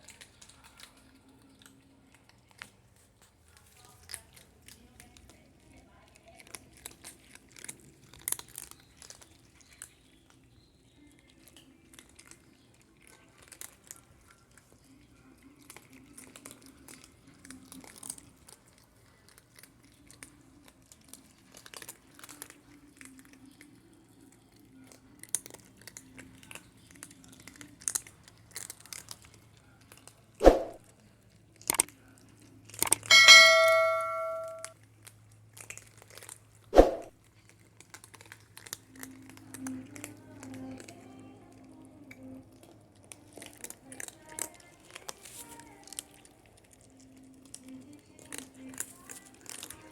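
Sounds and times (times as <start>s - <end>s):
cats crunching dry kibble: 0.0s - 33.1s, 34.7s - 49.9s
loud metallic clang: 33.1s - 34.7s.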